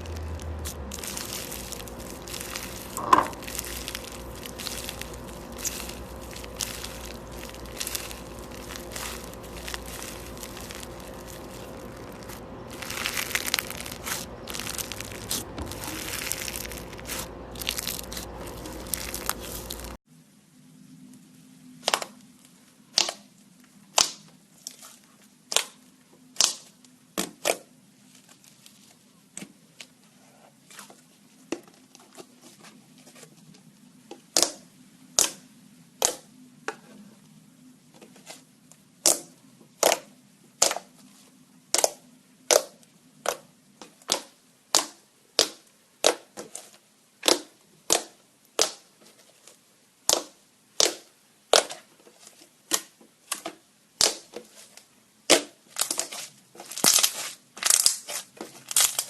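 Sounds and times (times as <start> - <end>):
faint low hum: 0.0 - 43.8.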